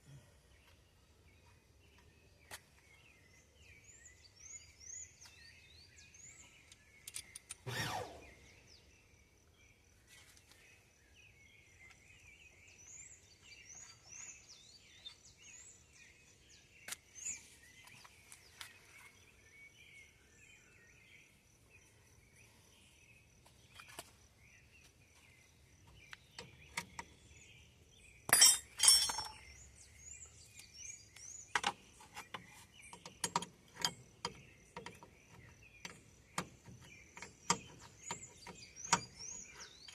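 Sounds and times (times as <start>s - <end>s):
birds chirping: 0.0s - 39.9s
metal tools clinking: 28.3s - 29.5s.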